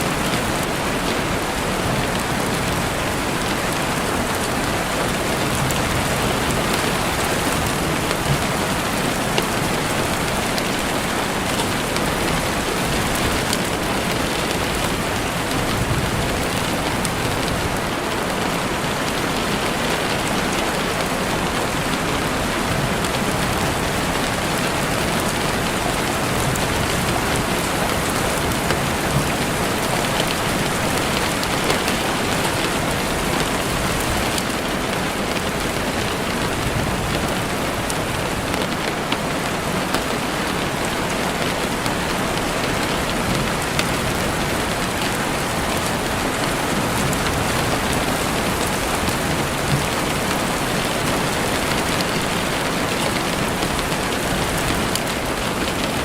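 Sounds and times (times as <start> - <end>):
heavy rain on a window: 0.0 - 56.0.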